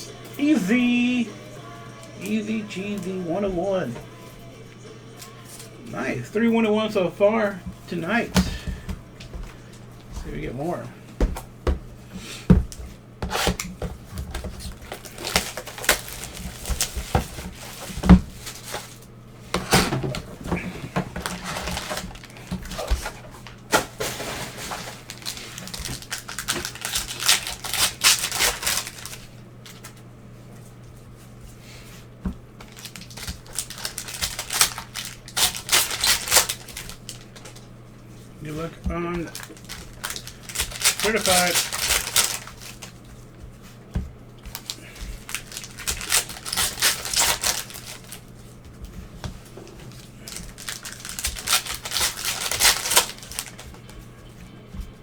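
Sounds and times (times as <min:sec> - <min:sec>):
card packaging tearing and crinkling: 0:13.2 - 0:19.0, 0:19.6 - 0:30.0, 0:32.6 - 0:37.7, 0:38.5 - 0:43.0, 0:44.5 - 0:48.4, 0:49.7 - 0:54.0
cards clicking: 0:39.2 - 0:43.0, 0:50.2 - 0:54.1.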